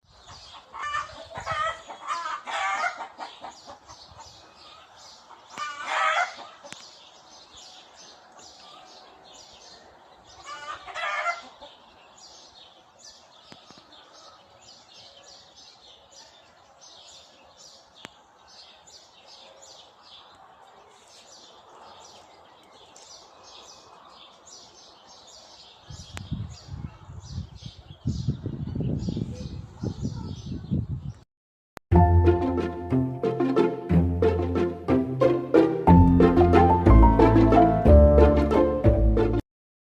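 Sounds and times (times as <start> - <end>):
small birds chirping: 0.0 - 31.2
chickens clucking: 0.2 - 7.1, 9.8 - 12.1.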